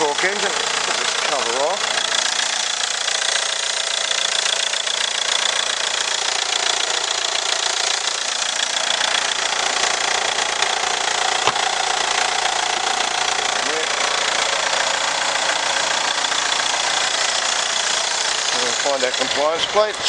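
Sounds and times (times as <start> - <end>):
diesel engine idling: 0.0 - 20.0
sharp knock: 11.4 - 11.7.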